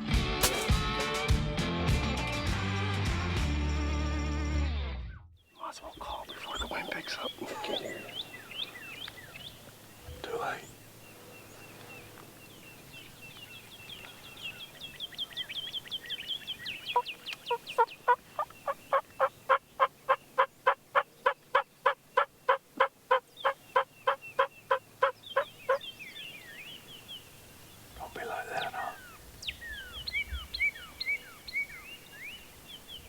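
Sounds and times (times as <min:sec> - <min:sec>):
turkey yelps: 0:17.0 - 0:25.8.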